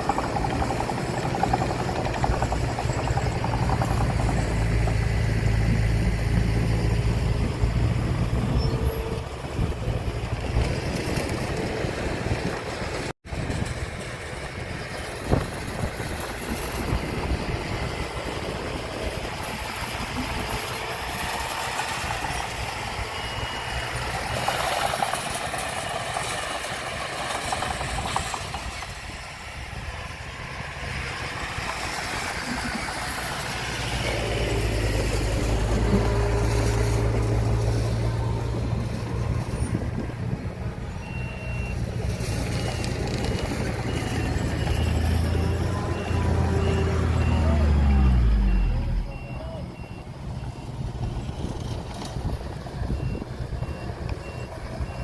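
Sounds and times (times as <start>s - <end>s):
diesel construction machinery running: 0.0s - 55.0s
reversing alarm beeps: 22.4s - 24.9s, 41.0s - 43.2s, 43.8s - 50.8s, 52.9s - 55.0s.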